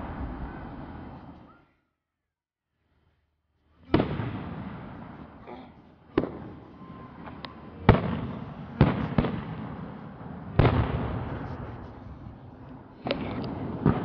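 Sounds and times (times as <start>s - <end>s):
firework shells booming: 3.8s - 5.4s, 6.0s - 14.0s.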